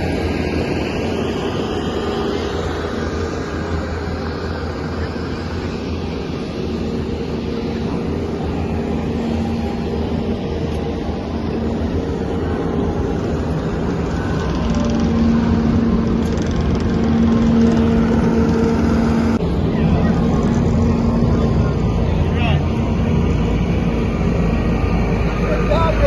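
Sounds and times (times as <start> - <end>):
car engines droning: 0.0 - 26.0.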